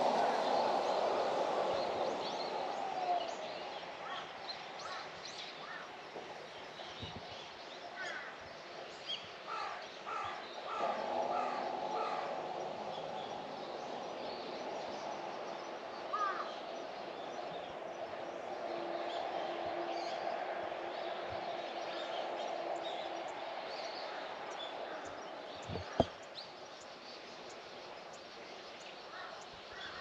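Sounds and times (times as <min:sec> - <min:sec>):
birds calling: 0:09.5 - 0:16.7, 0:22.8 - 0:26.4.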